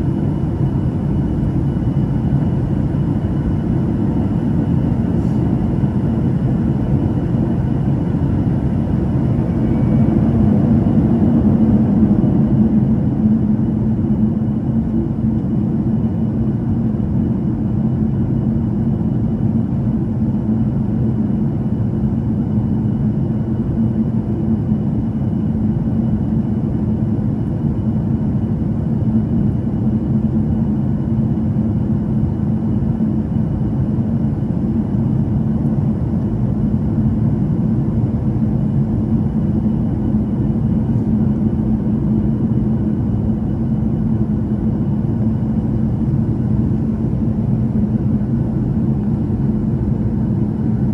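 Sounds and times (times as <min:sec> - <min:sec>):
faint thin whine: 0:00.0 - 0:11.4
jet engine cabin rumble: 0:00.0 - 0:50.9.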